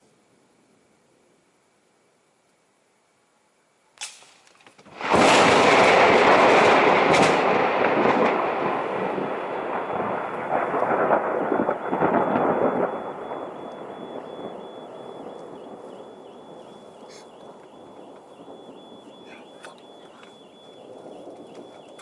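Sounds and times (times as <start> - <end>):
rolling thunder rumble: 4.9 - 22.0
thunder crack: 4.9 - 22.0.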